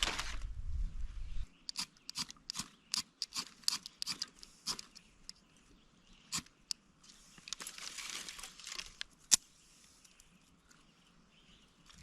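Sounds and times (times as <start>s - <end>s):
kindling rustling and crinkling: 0.0s - 0.6s, 7.0s - 9.2s.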